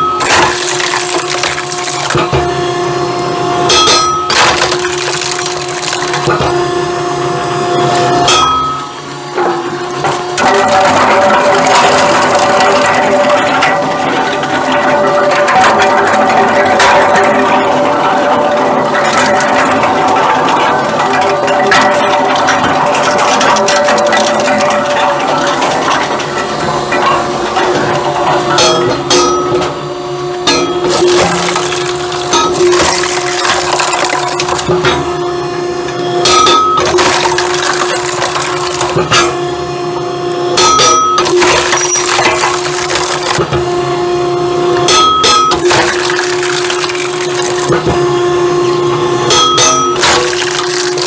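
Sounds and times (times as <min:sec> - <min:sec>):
machine humming: 0:00.0 - 0:51.0
firewood clattering: 0:04.3 - 0:06.4, 0:09.4 - 0:29.4, 0:30.5 - 0:34.9.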